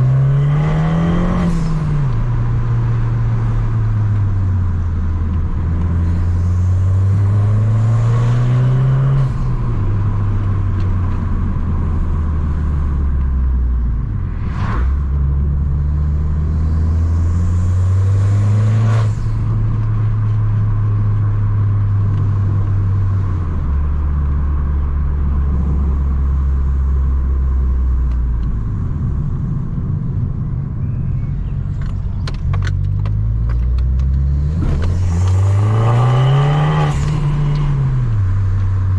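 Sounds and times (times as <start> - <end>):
car engine revving through gears: 0.0 - 2.2, 5.6 - 10.2, 14.4 - 19.9, 32.7 - 38.9.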